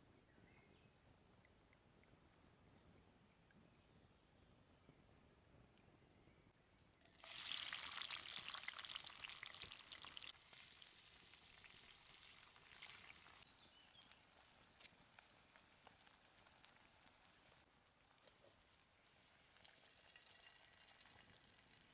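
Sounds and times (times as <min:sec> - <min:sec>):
food sizzling in hot pan: 0:07.1 - 0:17.6.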